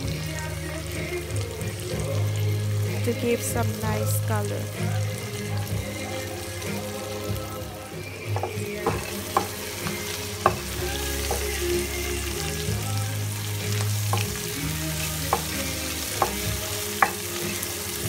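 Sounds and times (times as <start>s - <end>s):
food sizzling in hot oil: 0.0s - 18.0s
wooden spatula knocking on pan: 8.3s - 11.7s, 14.1s - 17.3s.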